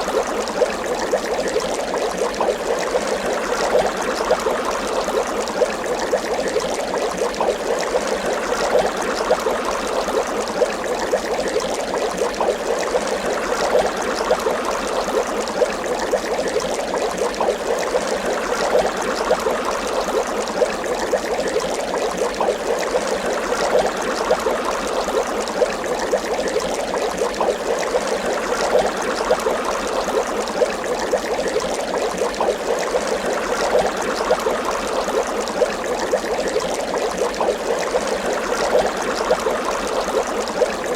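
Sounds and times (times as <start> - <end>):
water bubbling and gurgling: 0.0 - 40.9.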